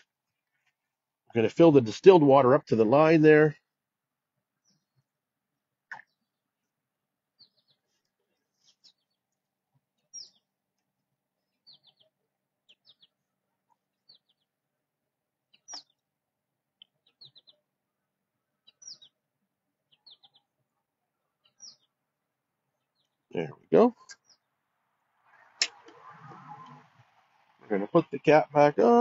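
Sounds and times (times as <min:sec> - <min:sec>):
faint bird chirps: 0:10.0 - 0:10.5, 0:11.4 - 0:14.5, 0:15.5 - 0:16.0, 0:16.8 - 0:17.7, 0:18.4 - 0:19.2, 0:19.9 - 0:22.0.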